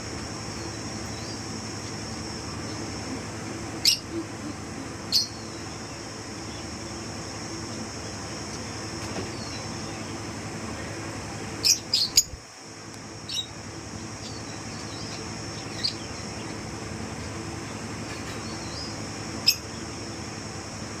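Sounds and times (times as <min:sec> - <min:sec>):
steady hum: 0:00.0 - 0:21.0
lovebirds chirping: 0:00.5 - 0:10.4, 0:11.6 - 0:12.4, 0:13.2 - 0:20.3.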